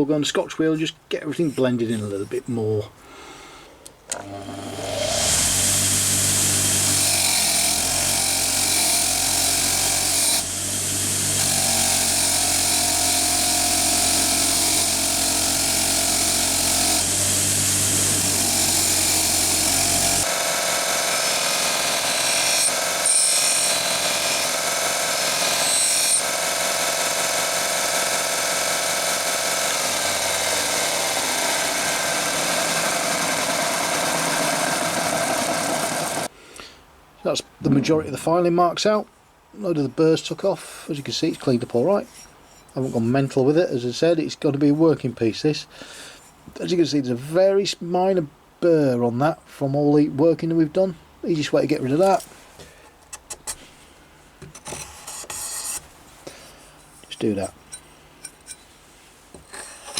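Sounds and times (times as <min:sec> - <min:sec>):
wire wheel grinding steel: 0:04.1 - 0:36.3.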